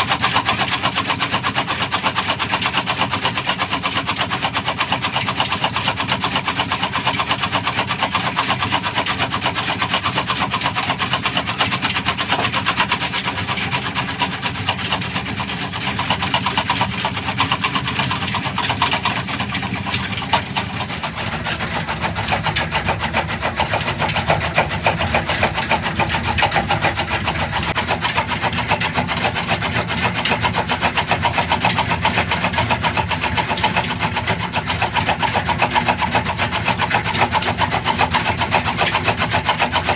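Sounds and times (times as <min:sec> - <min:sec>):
diesel engine running: 0:13.5 - 0:39.3.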